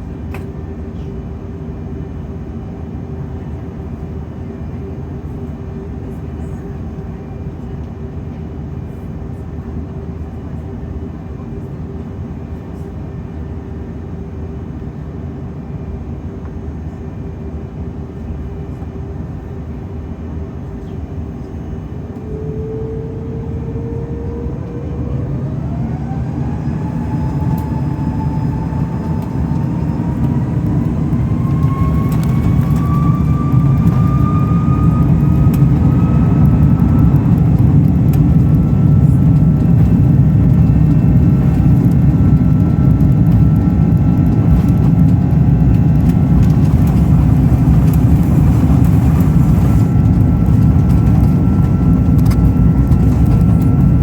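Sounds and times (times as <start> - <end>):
jet engines spooling up: 21.9 - 54.0
low rumble: 22.1 - 54.0.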